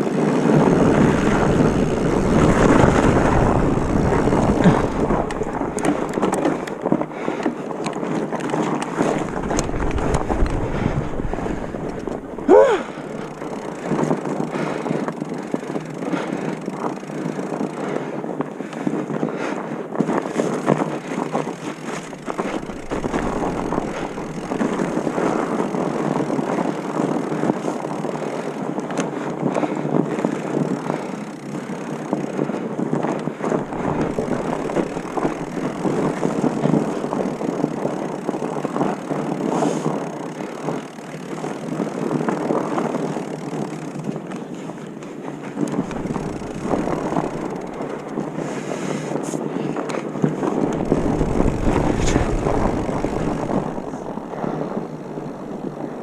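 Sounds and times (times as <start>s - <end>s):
wind gusts on microphone: 0.0s - 7.5s, 8.7s - 14.7s, 22.0s - 27.5s, 32.2s - 39.0s, 45.4s - 56.0s
rolling and rattling over rough trail: 0.0s - 56.0s.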